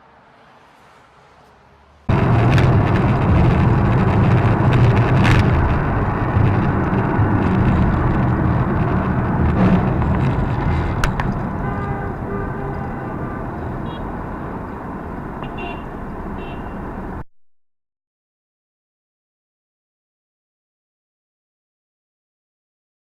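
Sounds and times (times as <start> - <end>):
car road and engine noise: 0.0 - 17.2
sharp knocks: 9.1 - 12.0.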